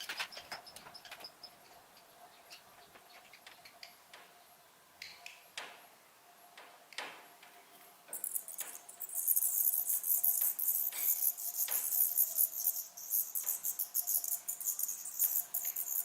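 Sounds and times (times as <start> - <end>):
soft high bird chirps: 8.1 - 16.0.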